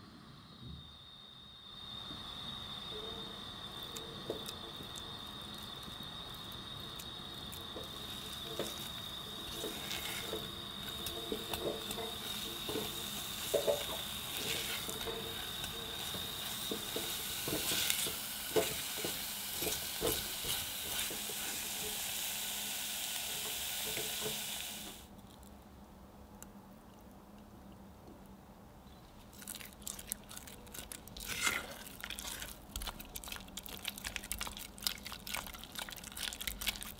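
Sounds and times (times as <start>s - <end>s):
thin high whine: 0.0s - 22.0s
faint sizzle: 0.0s - 25.1s, 29.3s - 36.9s
spatula scraping saucepan: 7.8s - 22.0s, 31.3s - 31.9s.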